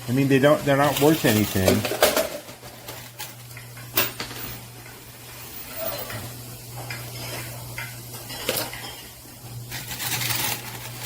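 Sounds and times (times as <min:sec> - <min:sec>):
coins and chips clinking: 0:00.8 - 0:04.6
coins clattering: 0:00.8 - 0:04.6, 0:09.7 - 0:11.0.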